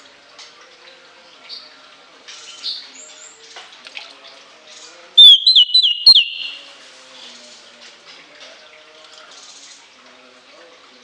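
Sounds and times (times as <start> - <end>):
shrill whistled bird call: 5.2 - 6.7
thrush singing: 5.2 - 6.7.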